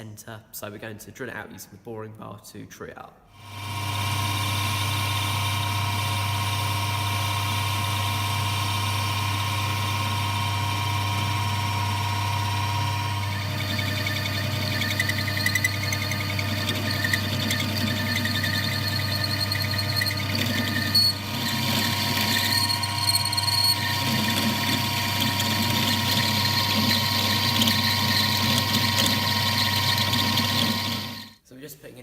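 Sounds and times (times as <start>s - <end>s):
lathe motor hum: 3.4s - 31.4s
high ringing cutting tones: 11.8s - 31.4s.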